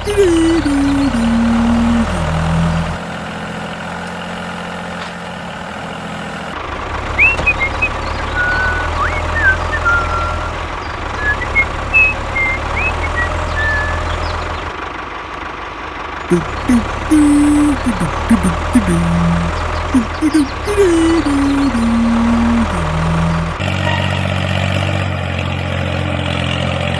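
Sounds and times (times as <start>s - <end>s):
short bird-like chirps: 7.2s - 14.4s.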